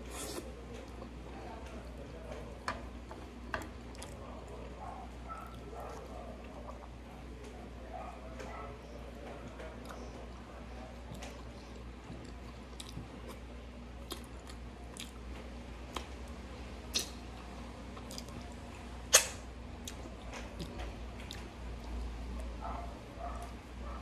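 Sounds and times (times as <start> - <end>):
chewing with wet mouth clicks: 3.5 - 4.6, 5.3 - 7.5, 11.0 - 22.1
lip smacks licking fingers: 16.9 - 17.2.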